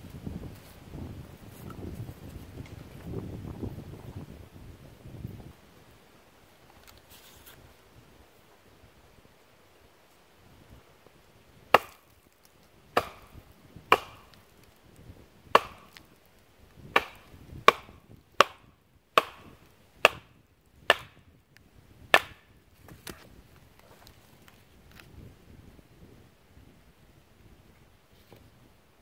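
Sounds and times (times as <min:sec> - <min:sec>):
blade chopping wood: 0:11.7 - 0:12.2, 0:13.0 - 0:14.7, 0:15.5 - 0:16.1, 0:16.9 - 0:21.2, 0:22.1 - 0:23.2.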